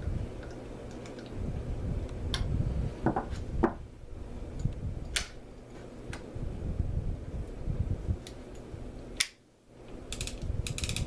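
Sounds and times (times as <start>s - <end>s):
light clicks of reel parts: 8.2s - 11.0s.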